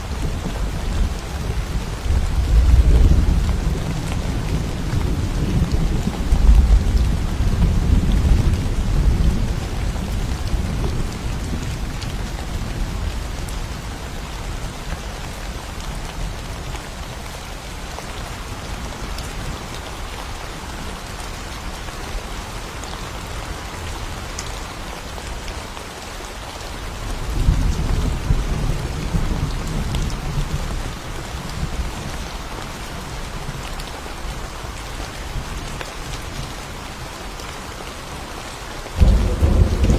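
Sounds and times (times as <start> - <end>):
rain falling in forest: 0.0 - 39.9
thunder rolling: 39.0 - 39.9.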